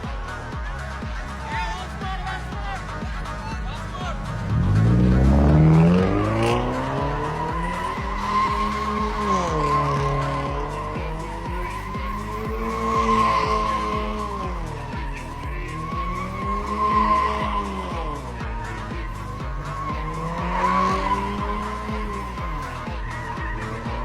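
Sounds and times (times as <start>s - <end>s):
car engine revving: 0.0s - 24.0s
tyre squeal: 5.6s - 24.0s.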